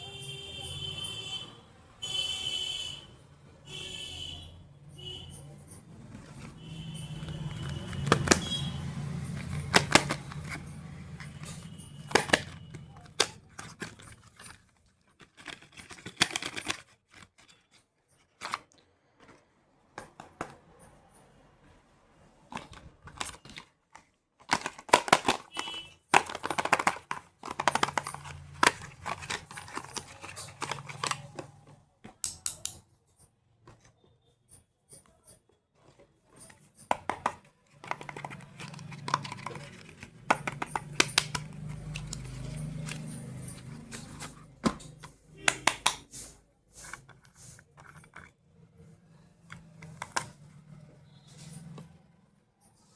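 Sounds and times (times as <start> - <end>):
plastic cases clicking and tapping: 6.0 - 17.6, 18.3 - 20.9, 22.5 - 32.8, 35.9 - 48.4, 49.5 - 50.5
packaging crinkling: 24.4 - 31.6, 37.0 - 46.0.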